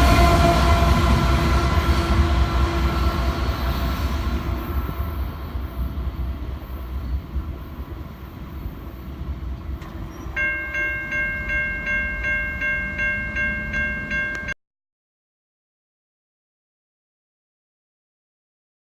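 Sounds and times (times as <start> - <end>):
freight train rumbling past: 0.0 - 14.5
crossing bell ringing: 10.2 - 14.6.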